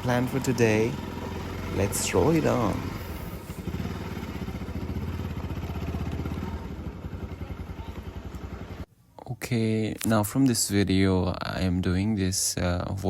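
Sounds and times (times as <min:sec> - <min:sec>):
motorcycle engine at low revs: 0:00.0 - 0:08.9.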